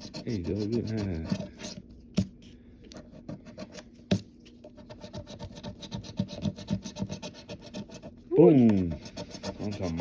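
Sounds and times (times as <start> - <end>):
lottery ticket being scratched: 0.0 - 1.7, 4.9 - 10.0.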